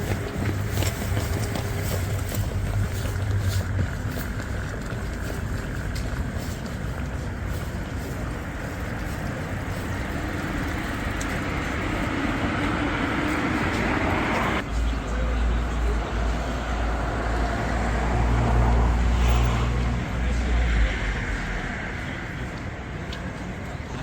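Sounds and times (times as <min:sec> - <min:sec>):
steady low rumble: 0:00.0 - 0:14.6.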